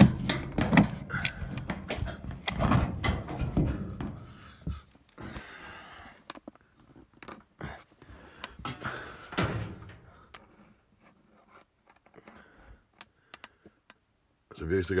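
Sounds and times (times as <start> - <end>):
knocks inside dryer cabinet: 0.0 - 4.4.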